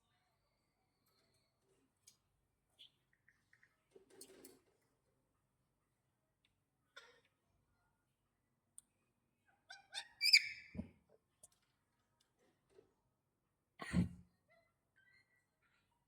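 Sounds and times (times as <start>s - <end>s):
parrot whistled squawk: 9.7s - 10.7s.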